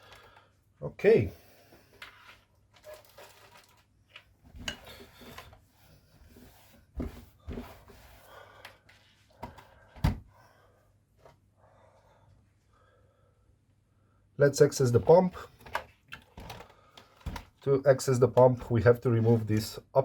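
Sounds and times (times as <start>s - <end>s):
plastic parts rustling and rubbing: 1.9s - 9.8s, 14.8s - 19.8s.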